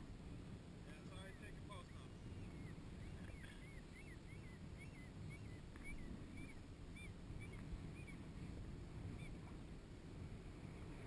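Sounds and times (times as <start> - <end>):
wind: 0.0 - 11.0
bird calling: 1.1 - 9.5.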